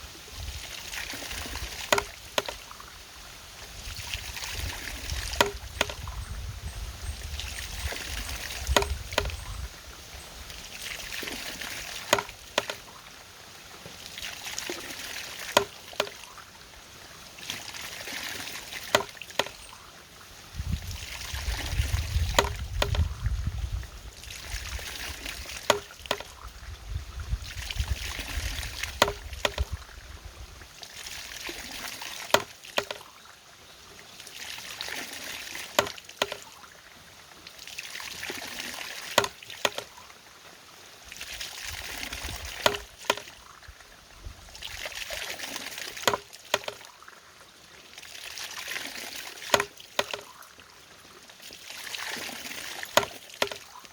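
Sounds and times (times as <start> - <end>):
water running and splashing: 0.0 - 53.9
sharp knocks of water mechanism: 0.9 - 2.8, 4.1 - 6.3, 7.7 - 9.7, 10.8 - 13.0, 13.8 - 16.4, 17.4 - 19.8, 20.7 - 23.4, 24.3 - 26.6, 27.5 - 29.9, 31.0 - 33.2, 34.8 - 36.6, 38.1 - 40.0, 41.2 - 43.6, 44.6 - 47.0, 48.7 - 50.6, 51.4 - 53.9.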